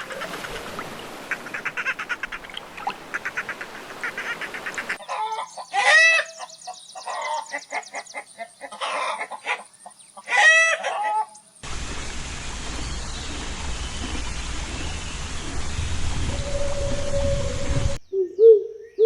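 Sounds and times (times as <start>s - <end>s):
chickens crying: 3.2s - 6.4s, 8.6s - 9.6s, 10.2s - 11.3s
noisy hiss with low rumble: 11.6s - 18.0s.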